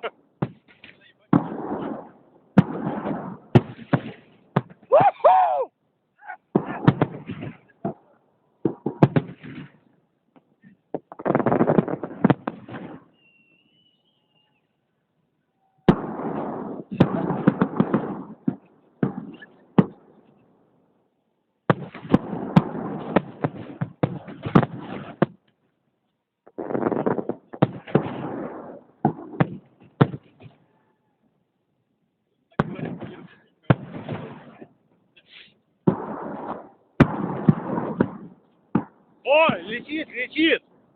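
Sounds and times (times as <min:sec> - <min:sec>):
fireworks exploding: 0:00.0 - 0:05.7, 0:06.4 - 0:09.9, 0:10.6 - 0:14.0, 0:15.8 - 0:20.4, 0:21.7 - 0:25.4, 0:26.4 - 0:30.6, 0:32.5 - 0:34.8, 0:35.8 - 0:40.8.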